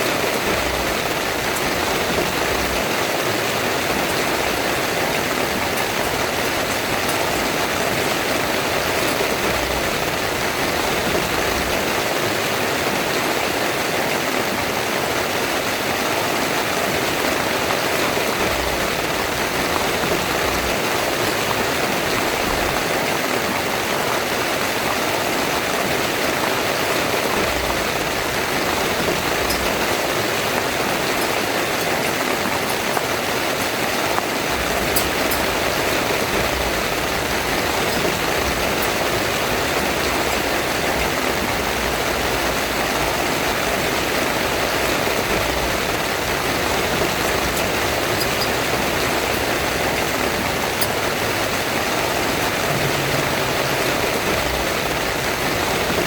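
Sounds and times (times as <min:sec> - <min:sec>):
heavy rain on a tent: 0:00.0 - 0:56.0.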